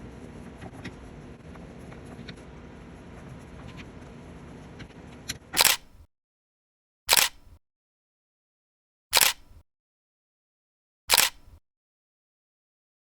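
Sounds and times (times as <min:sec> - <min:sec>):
small click: 0:05.6 - 0:06.1, 0:07.1 - 0:07.6, 0:09.1 - 0:09.6, 0:11.1 - 0:11.6.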